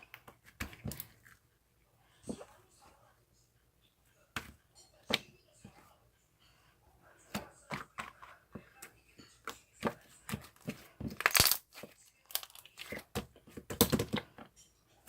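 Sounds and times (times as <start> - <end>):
objects clicking and crinkling: 10.3 - 14.7.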